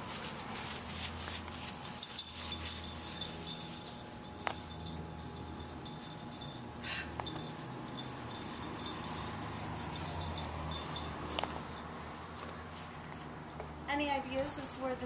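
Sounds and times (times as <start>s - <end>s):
low steady hum: 0.0s - 15.0s
high chime-like tones: 1.8s - 12.3s.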